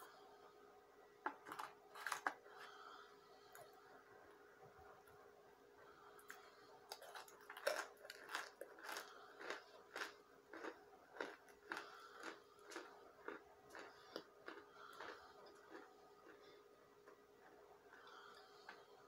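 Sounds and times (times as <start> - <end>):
crunchy biting and chewing: 1.3 - 2.8, 6.2 - 17.2.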